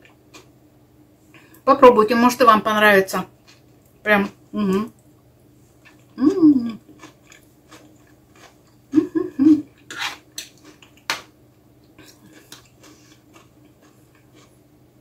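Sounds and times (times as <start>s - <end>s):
person chewing: 0.0s - 0.5s, 3.4s - 4.0s, 5.8s - 14.6s
person humming: 6.2s - 6.8s, 9.0s - 9.7s.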